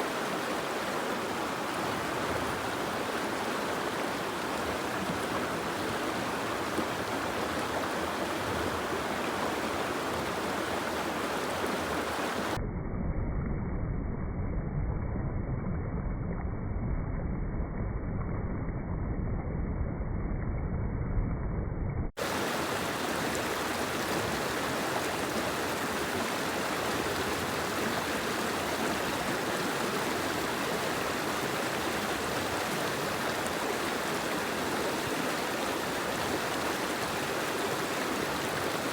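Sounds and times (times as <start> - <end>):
rain and running water: 0.0 - 12.6, 22.2 - 38.9.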